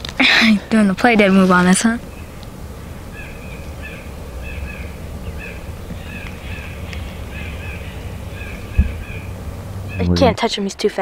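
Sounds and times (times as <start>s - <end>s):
low rumble on microphone: 2.0s - 10.4s
thump: 8.8s - 9.0s.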